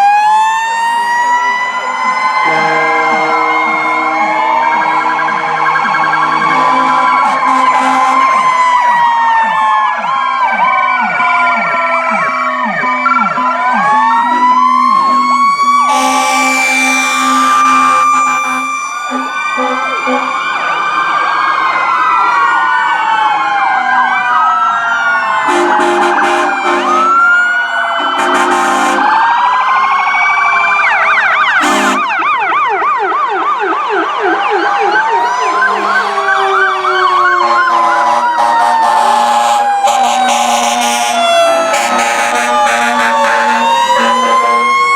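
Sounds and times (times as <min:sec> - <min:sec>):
emergency sirens wailing: 0:00.0 - 0:44.9
siren yelp: 0:00.0 - 0:44.9
air horn bursts: 0:02.4 - 0:04.4, 0:06.2 - 0:08.4, 0:15.8 - 0:20.6, 0:25.4 - 0:27.3, 0:28.0 - 0:29.2, 0:31.6 - 0:32.1, 0:37.4 - 0:44.7.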